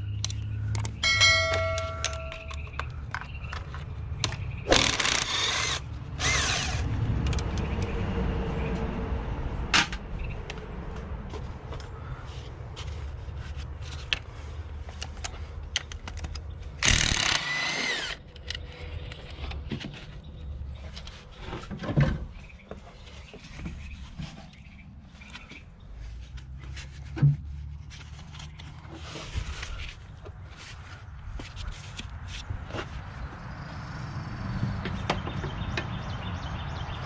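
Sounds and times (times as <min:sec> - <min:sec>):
tools and metal parts clinking: 0:00.8 - 0:05.1.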